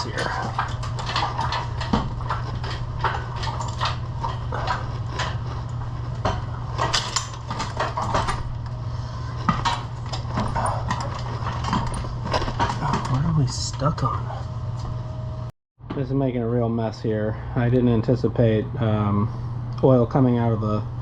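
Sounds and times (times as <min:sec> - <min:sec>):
metallic clinks and rattles: 0:00.0 - 0:08.5
steady low hum: 0:00.0 - 0:21.0.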